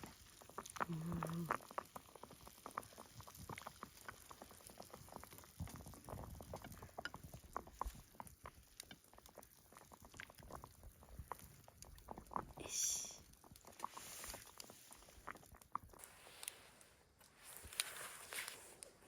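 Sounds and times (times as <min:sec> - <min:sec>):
pot simmering with bubbling: 0:00.0 - 0:19.0.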